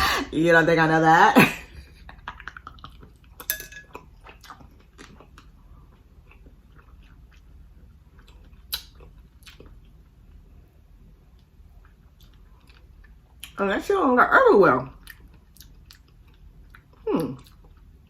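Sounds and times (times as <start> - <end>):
chewing and lip-smacking: 2.1 - 10.5, 11.3 - 13.6, 14.9 - 18.0.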